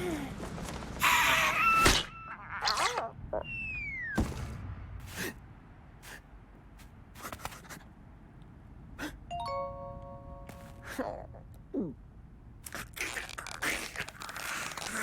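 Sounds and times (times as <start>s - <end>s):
cartoon falling whistle: 3.4s - 4.2s
bell-like chime: 9.3s - 10.8s.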